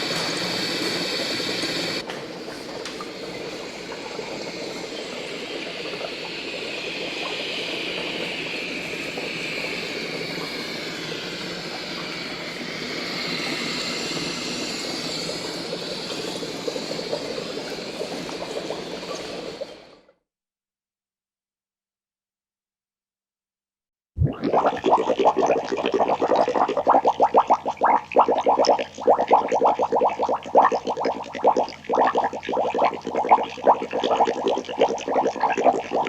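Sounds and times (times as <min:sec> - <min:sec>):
shifting whistling tones: 0:03.9 - 0:19.5.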